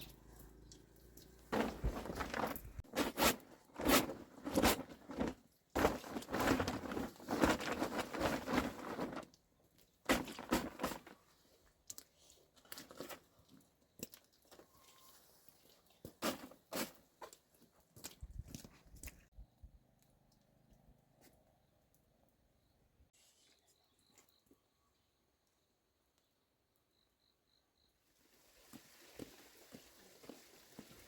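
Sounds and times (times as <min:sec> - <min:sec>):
crunching and rustling handling noises: 0:00.0 - 0:19.3.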